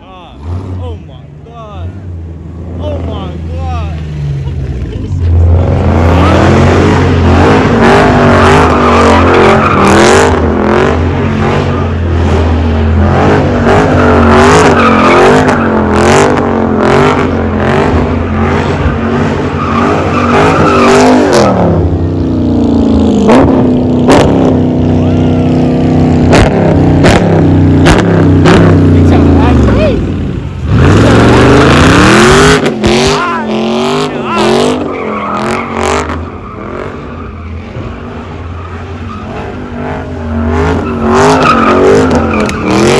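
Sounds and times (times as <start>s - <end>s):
car engine revving: 0.0s - 42.9s
tyre squeal: 40.7s - 42.9s.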